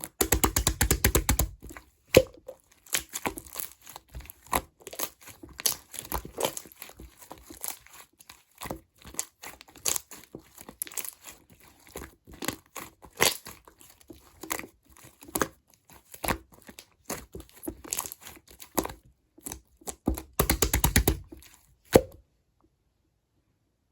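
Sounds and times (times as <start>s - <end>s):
slime crackling and popping: 0.1s - 14.6s.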